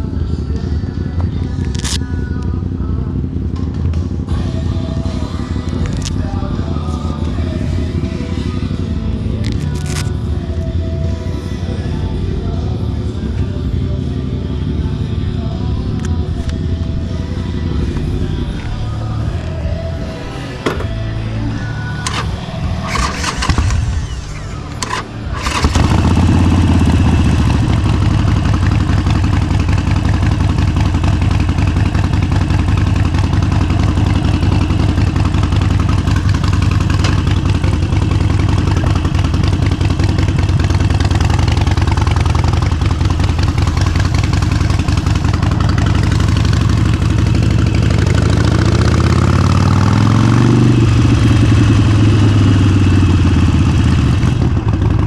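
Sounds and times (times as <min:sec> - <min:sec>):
motorcycle engine starting and idling: 0:00.0 - 0:55.0
clicks: 0:22.0 - 0:25.9.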